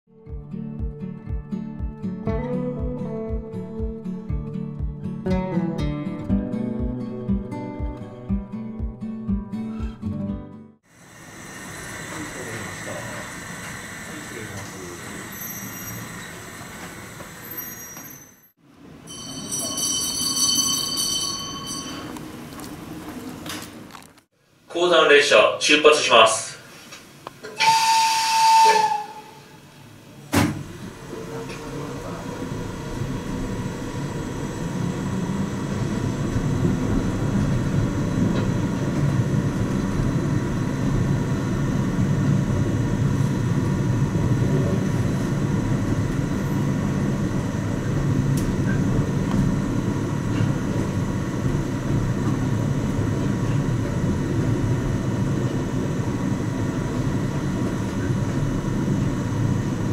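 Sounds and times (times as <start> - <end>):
whistle: 27.6 - 29.5.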